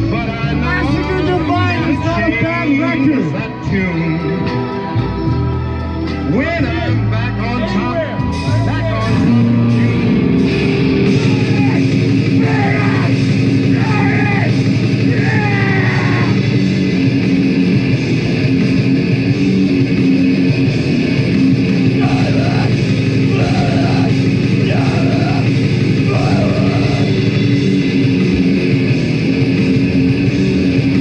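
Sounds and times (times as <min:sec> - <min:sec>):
bass and drums: 0:00.0 - 0:31.0
distorted electric guitars: 0:00.0 - 0:31.0
shouts: 0:06.2 - 0:09.9, 0:11.0 - 0:16.4, 0:21.9 - 0:27.2.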